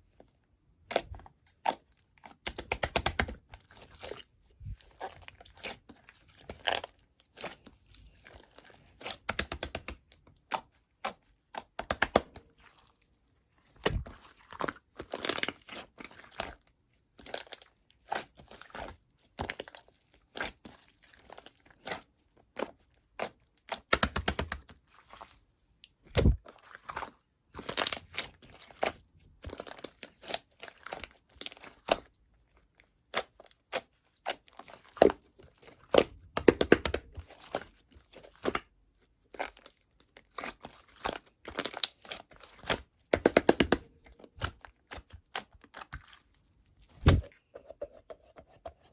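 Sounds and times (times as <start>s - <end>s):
slime crackling and crunching: 39.3s - 46.3s.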